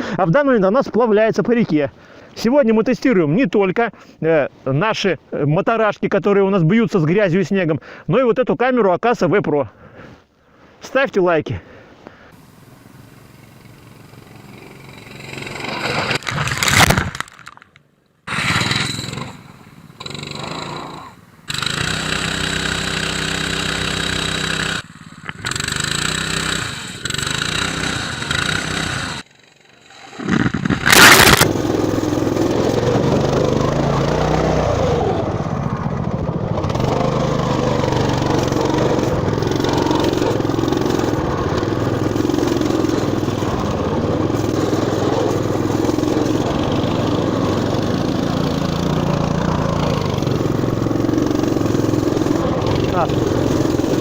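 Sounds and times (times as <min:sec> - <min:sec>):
small engines running: 0:12.4 - 0:16.9, 0:18.3 - 0:54.0
loud bursts of noise: 0:19.8 - 0:54.0.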